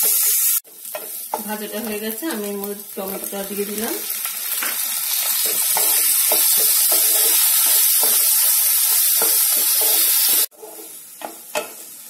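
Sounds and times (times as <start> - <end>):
tomatoes sizzling in hot oil: 0.0 - 12.0
wooden spatula scraping a pan: 4.6 - 12.0.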